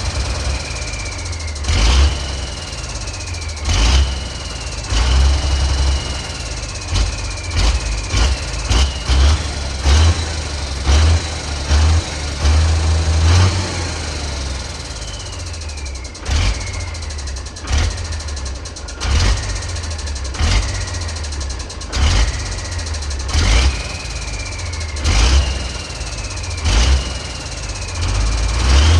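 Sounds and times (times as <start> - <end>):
truck engine revving: 0.0 - 28.9
turbo whistle: 12.7 - 21.4, 22.0 - 28.9.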